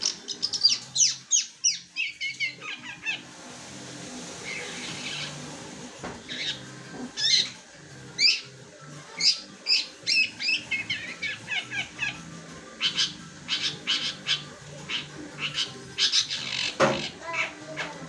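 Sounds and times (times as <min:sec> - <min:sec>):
bird chirping: 0:00.0 - 0:03.2, 0:08.2 - 0:18.0.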